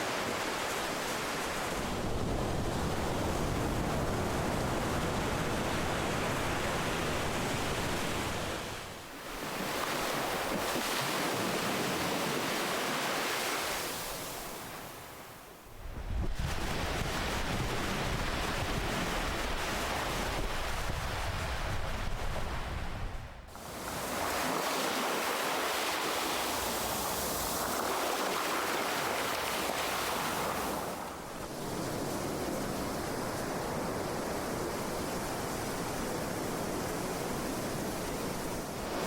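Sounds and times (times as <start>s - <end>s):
ocean waves breaking: 0.0s - 15.2s, 23.5s - 37.7s.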